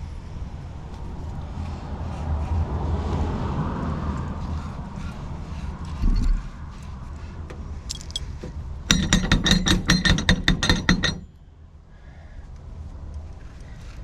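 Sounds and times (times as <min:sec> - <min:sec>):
sharp metallic clicks ringing: 0:07.9 - 0:11.4.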